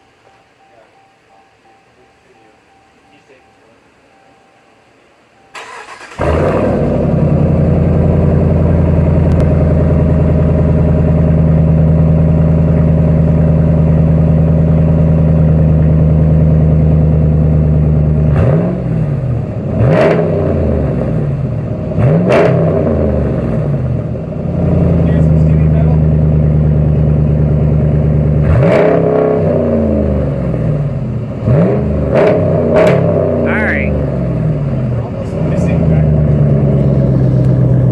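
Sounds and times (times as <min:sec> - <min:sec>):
engine cranking: 0:05.5 - 0:07.0
pickup engine idling: 0:05.5 - 0:22.1, 0:22.7 - 0:28.6, 0:29.5 - 0:37.9
engine revving: 0:05.6 - 0:37.9.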